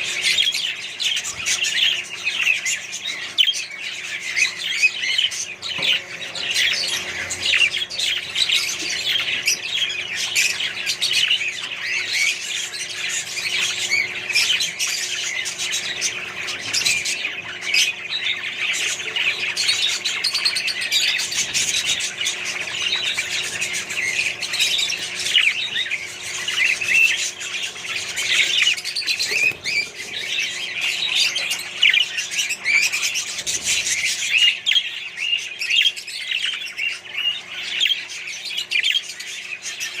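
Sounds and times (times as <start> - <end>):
parrots chattering and squawking: 0.0 - 40.0.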